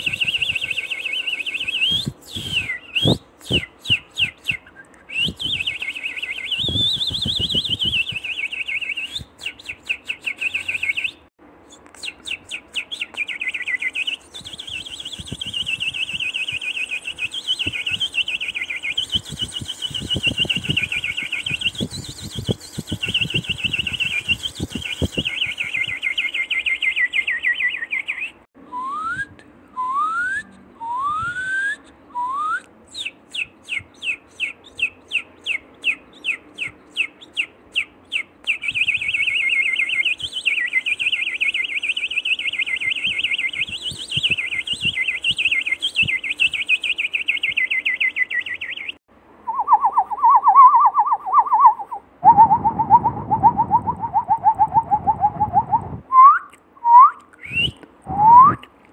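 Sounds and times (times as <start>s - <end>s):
high bird trill: 0.0s - 28.3s
lower bird trill: 0.0s - 28.4s
rising bird whistles: 0.0s - 58.7s
quick sharp bird notes: 12.0s - 28.2s
warbling bird trill: 12.0s - 28.3s.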